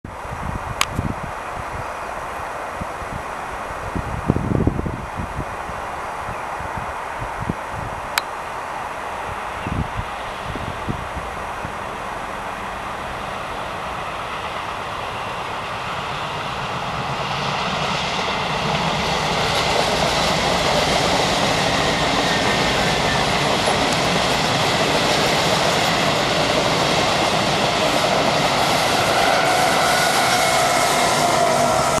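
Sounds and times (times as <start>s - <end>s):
train wheels rolling on rails: 9.4s - 32.0s.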